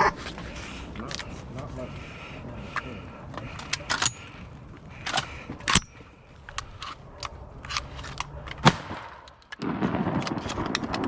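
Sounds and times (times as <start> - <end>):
sharp short cracks and clicks: 8.6 - 11.0.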